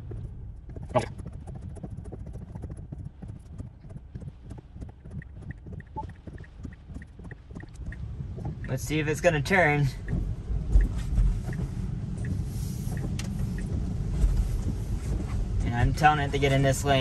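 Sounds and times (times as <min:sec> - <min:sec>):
low cabin hum: 0:00.0 - 0:17.0
turn signal ticking: 0:00.2 - 0:17.0
raindrops ticking on car glass: 0:03.7 - 0:17.0.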